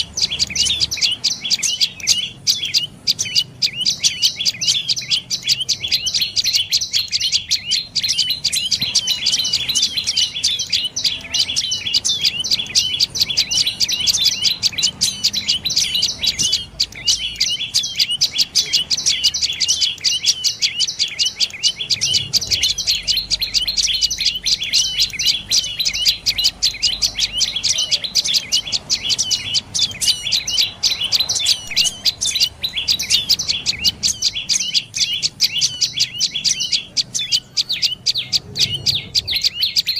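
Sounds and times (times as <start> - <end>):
bird chirping rapidly: 0.0 - 39.9.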